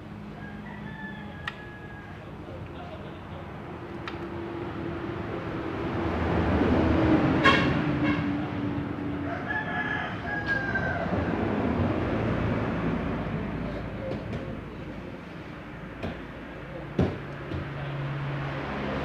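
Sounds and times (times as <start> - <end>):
rooster crowing: 0.3 - 2.4, 9.2 - 11.6.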